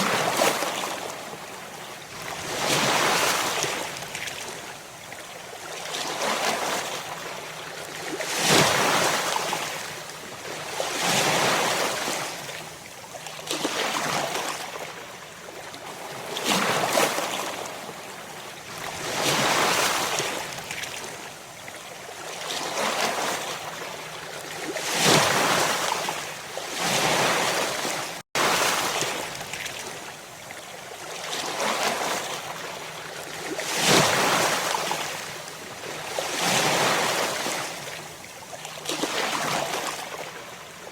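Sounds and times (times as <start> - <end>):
ocean waves breaking: 24.7 - 30.0.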